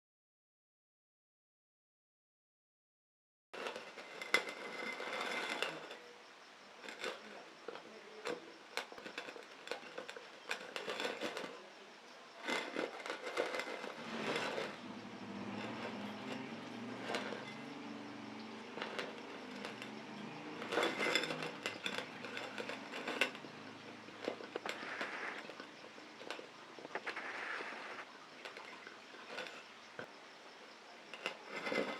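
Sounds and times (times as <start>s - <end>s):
metal oil can rattling: 12.3s - 27.4s.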